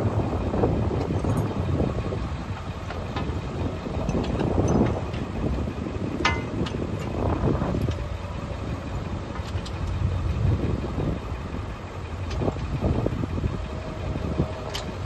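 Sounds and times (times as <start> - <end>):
vehicle engine and road rumble: 0.0 - 15.0
clicks and rattles: 4.0 - 8.1, 9.3 - 10.0.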